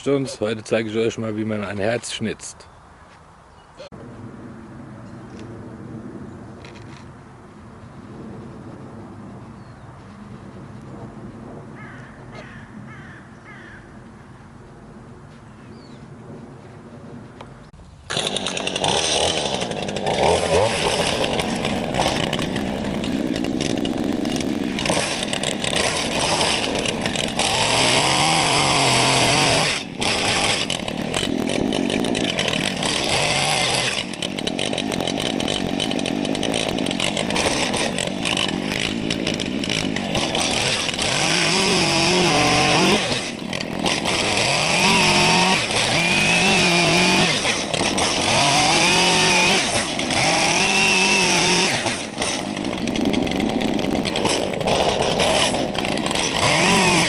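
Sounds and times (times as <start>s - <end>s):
chainsaw carving wood: 18.1s - 57.0s.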